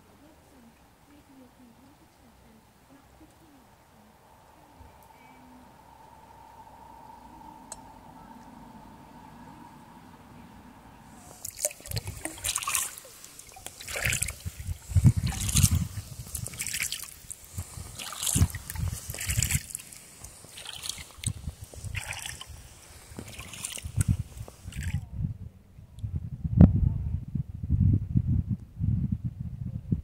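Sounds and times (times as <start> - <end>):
kayak paddle splashing: 11.0 - 25.0.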